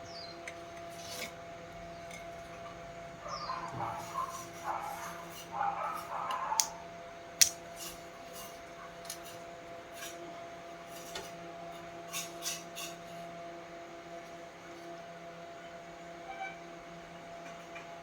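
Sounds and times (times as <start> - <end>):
scraping and rubbing: 0.9 - 1.4, 3.6 - 6.6
tools clicking and tapping: 7.4 - 8.0.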